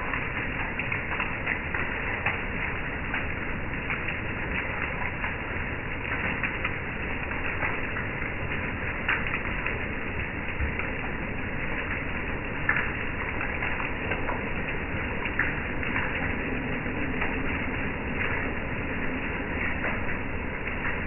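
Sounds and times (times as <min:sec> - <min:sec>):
heavy rain on wooden deck: 0:00.0 - 0:21.0
rain drips on metal furniture: 0:00.0 - 0:21.0.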